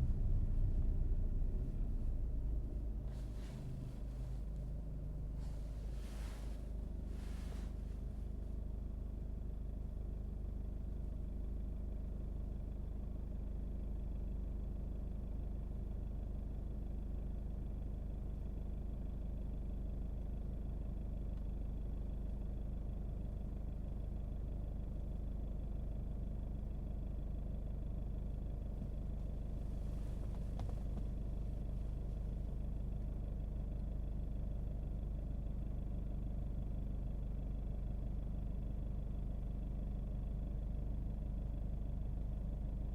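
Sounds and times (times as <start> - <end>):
car engine and road noise: 0.0 - 9.6, 28.4 - 35.0.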